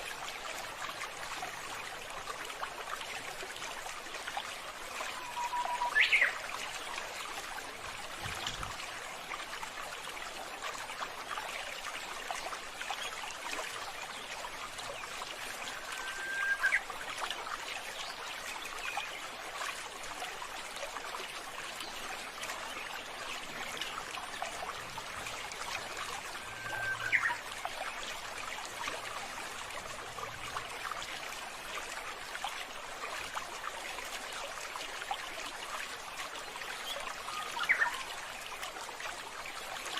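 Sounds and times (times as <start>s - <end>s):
water trickling: 0.0s - 39.9s
bird call sweeping upward: 5.2s - 6.4s, 15.9s - 16.8s, 26.4s - 27.4s.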